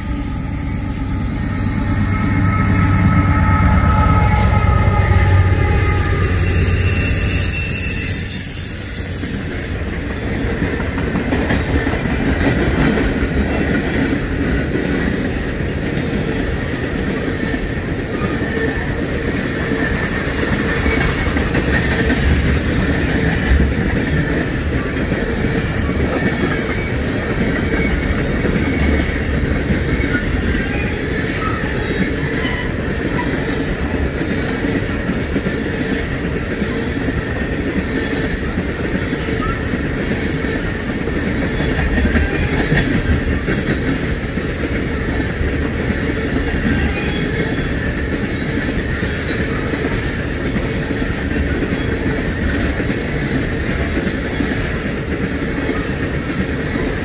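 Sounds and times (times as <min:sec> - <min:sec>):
faint wheel squeal: 0:00.0 - 0:09.6
train wheels on rails: 0:00.0 - 0:57.0.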